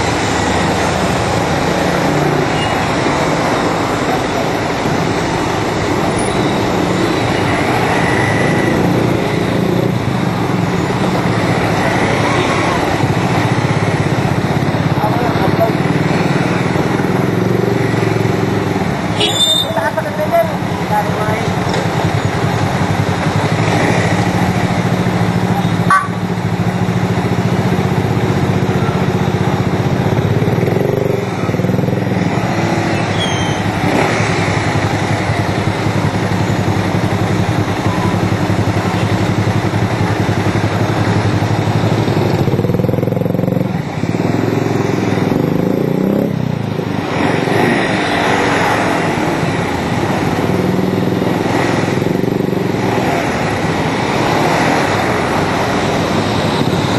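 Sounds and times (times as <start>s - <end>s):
motorcycle engine running: 0.0s - 56.9s
road noise: 0.0s - 56.9s.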